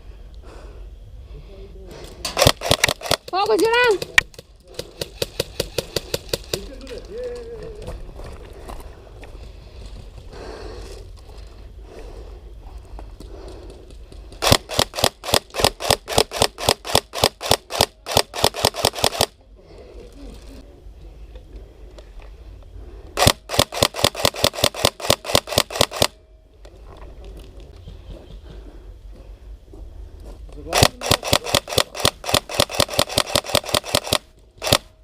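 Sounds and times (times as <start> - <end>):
airsoft gun rapid shots: 2.4 - 6.7, 14.4 - 19.3, 23.2 - 26.2, 30.7 - 34.9.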